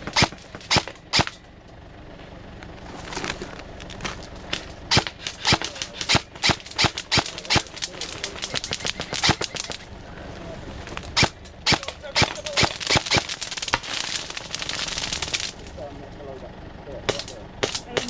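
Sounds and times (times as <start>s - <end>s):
airsoft gun shots: 0.0s - 1.4s, 4.9s - 9.8s, 11.1s - 15.6s, 17.1s - 18.0s.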